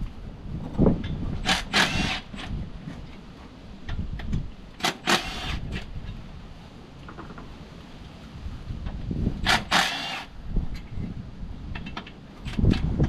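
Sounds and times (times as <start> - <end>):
hard objects rattling and scraping: 0.5 - 2.4.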